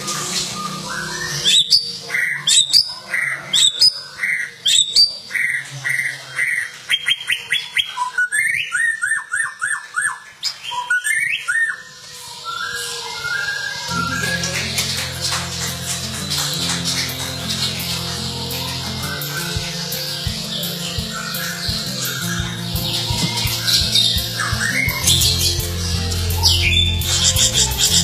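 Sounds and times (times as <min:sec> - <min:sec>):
songbird whistling song: 0:00.0 - 0:17.8.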